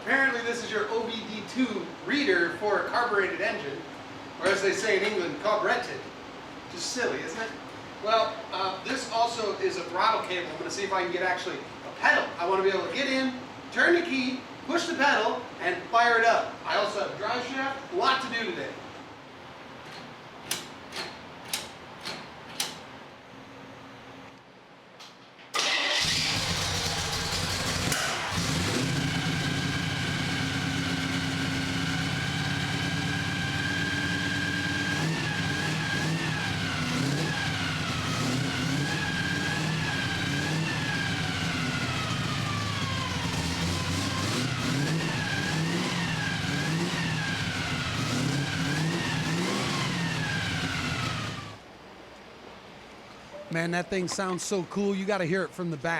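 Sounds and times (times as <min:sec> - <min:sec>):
car engine idling and revving: 0:26.0 - 0:51.6.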